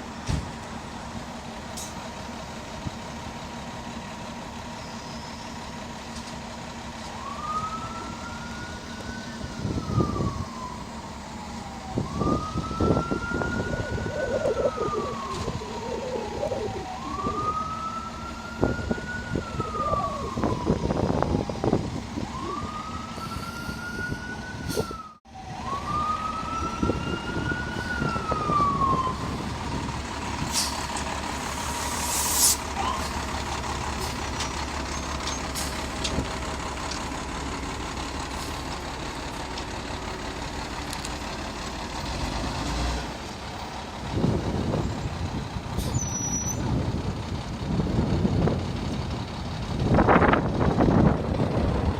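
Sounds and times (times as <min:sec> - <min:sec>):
low vehicle rumble: 0:00.0 - 0:51.9
siren wailing: 0:07.2 - 0:35.3.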